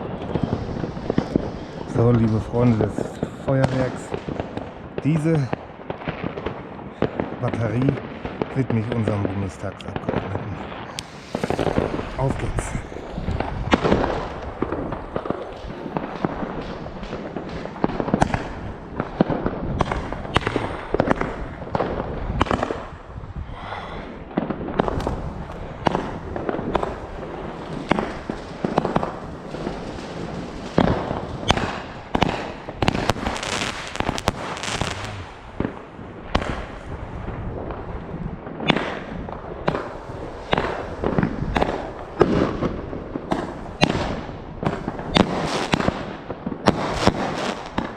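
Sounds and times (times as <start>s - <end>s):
firework crackle: 0.0s - 8.5s, 10.7s - 23.0s, 24.0s - 37.8s, 38.8s - 47.9s
firework bangs: 10.0s - 22.9s, 25.8s - 37.8s, 38.5s - 47.9s.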